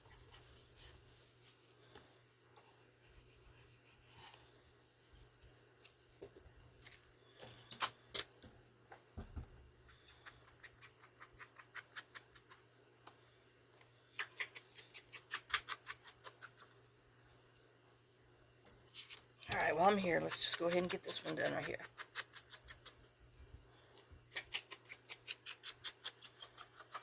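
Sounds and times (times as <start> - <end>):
light quick paper clicks and scratches: 0.0 - 8.0, 13.8 - 16.9, 18.8 - 23.1, 23.9 - 27.0
faint steady hum: 0.0 - 27.0.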